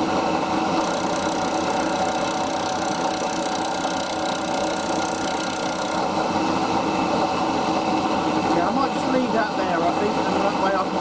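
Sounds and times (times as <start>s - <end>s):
milling machine motor hum: 0.0s - 7.3s.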